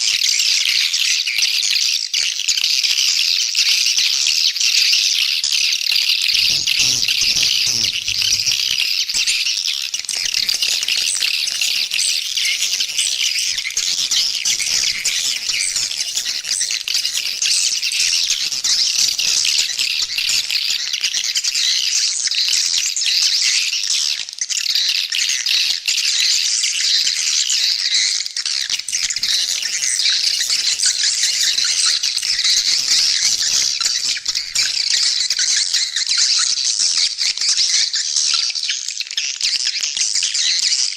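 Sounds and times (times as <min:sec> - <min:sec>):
high twittering swiftlet calls: 0:06.3 - 0:22.7, 0:28.6 - 0:37.9.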